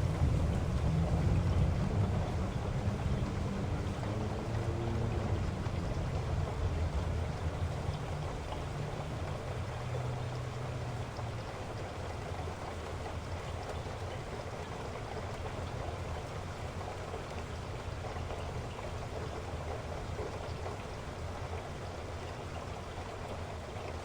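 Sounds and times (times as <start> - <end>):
low rumble: 0.0 - 4.5
heavy rain falling: 0.0 - 14.0.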